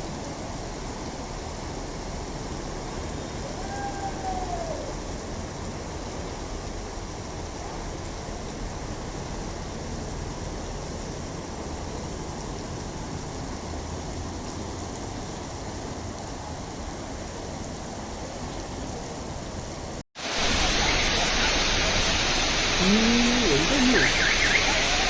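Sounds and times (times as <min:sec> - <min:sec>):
rushing water: 0:00.0 - 0:25.0
hissy rush: 0:20.2 - 0:25.0.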